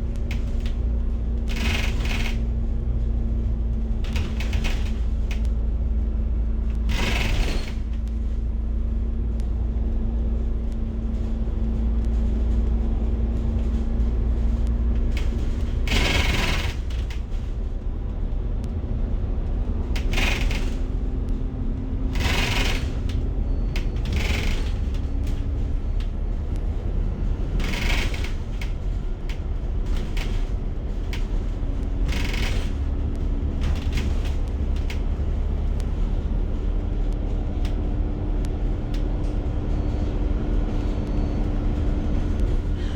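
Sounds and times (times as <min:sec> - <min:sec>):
bus engine and road rumble: 0:00.0 - 0:42.9.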